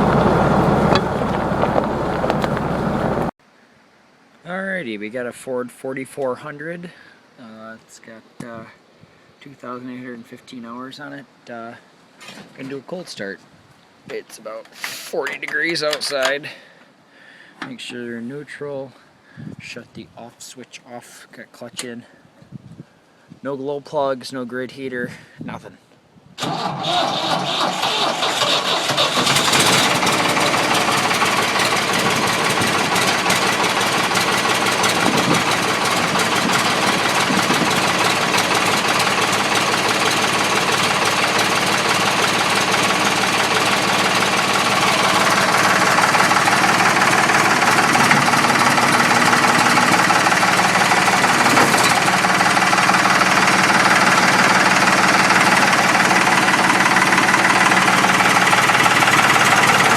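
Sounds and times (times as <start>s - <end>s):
diesel tractor engine idling: 0.0s - 3.3s, 26.4s - 59.9s
starter motor cranking: 0.0s - 3.3s, 26.4s - 59.9s.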